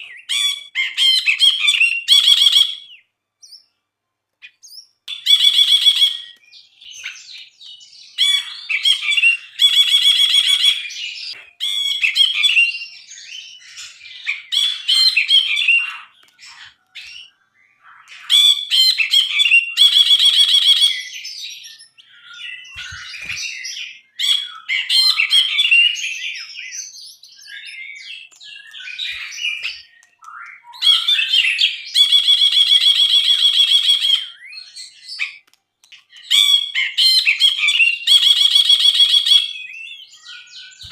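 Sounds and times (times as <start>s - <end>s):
bulbul singing: 4.4s - 40.9s.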